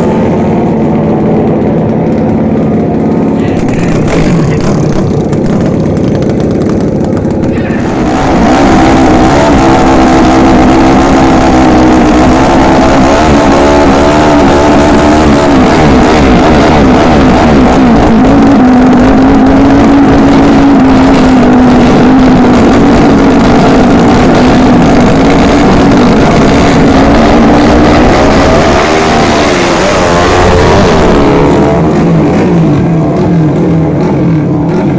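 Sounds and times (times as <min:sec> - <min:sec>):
racing motorcycle engine: 0:00.0 - 0:34.9.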